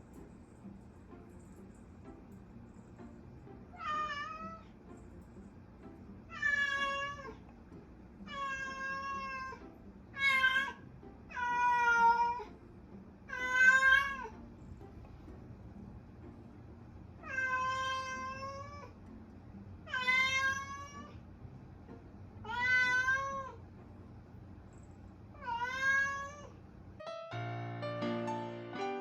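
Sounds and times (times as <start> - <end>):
cat meowing: 3.8 - 4.6, 6.3 - 7.4, 8.3 - 9.6, 10.2 - 12.5, 13.3 - 14.3, 17.2 - 18.9, 19.9 - 21.2, 22.4 - 23.6, 25.4 - 26.6.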